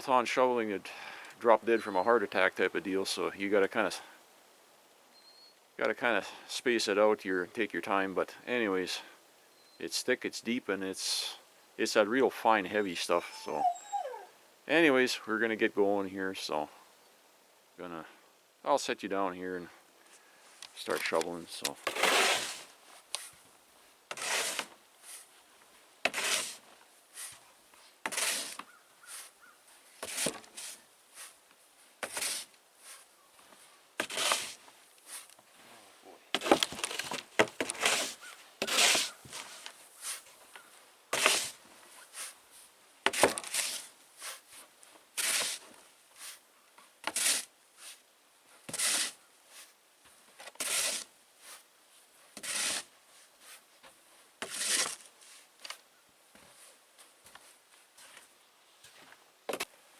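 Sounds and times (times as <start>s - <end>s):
snow shovel scraping snow: 21.8s - 23.4s, 24.1s - 25.3s, 26.1s - 27.4s, 28.0s - 29.3s, 30.0s - 31.4s, 32.0s - 33.1s, 34.0s - 35.3s, 36.4s - 40.3s, 41.1s - 42.4s, 43.1s - 44.6s, 45.2s - 46.4s, 47.1s - 48.0s, 48.7s - 49.8s, 50.6s - 51.6s, 52.4s - 53.6s, 54.4s - 55.5s.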